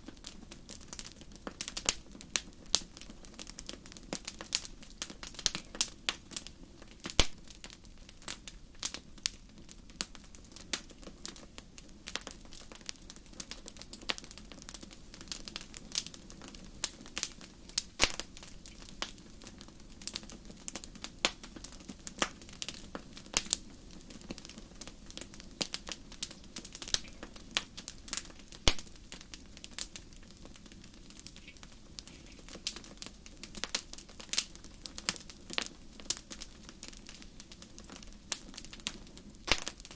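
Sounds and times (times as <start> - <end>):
wood crackling in fireplace: 0.0 - 39.9.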